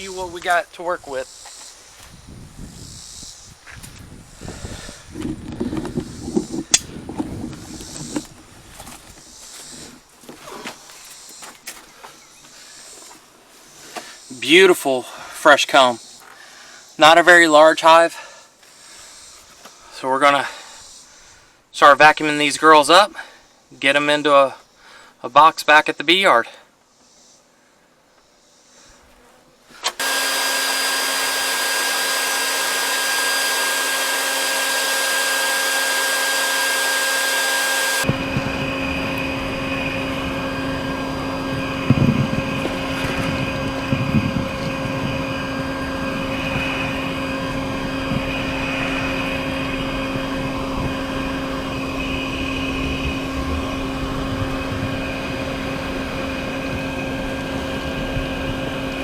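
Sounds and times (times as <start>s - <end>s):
vacuum motor whine: 4.5s - 9.2s, 29.8s - 59.0s.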